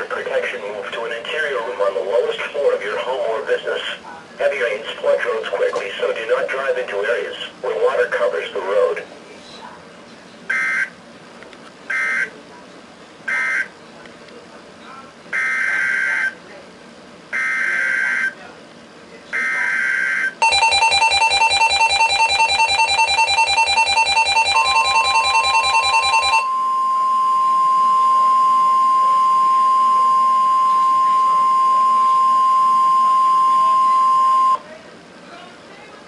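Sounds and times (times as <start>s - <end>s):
steady warning tone: 13.3s - 13.8s, 15.3s - 16.4s, 17.3s - 18.4s, 19.3s - 34.6s
fast-pulsing alert alarm: 15.4s - 16.3s, 17.4s - 18.4s, 19.4s - 34.6s
digital data bursts: 19.4s - 26.5s.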